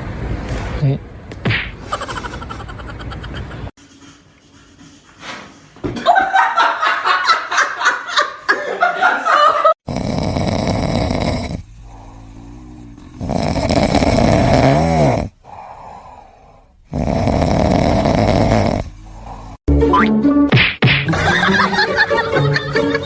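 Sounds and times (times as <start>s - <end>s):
people laughing: 1.9s - 3.7s, 6.0s - 9.8s, 21.1s - 23.0s
pet snoring loudly: 9.8s - 19.6s
quiet breathing: 11.2s - 13.6s, 15.3s - 16.9s, 18.7s - 19.6s.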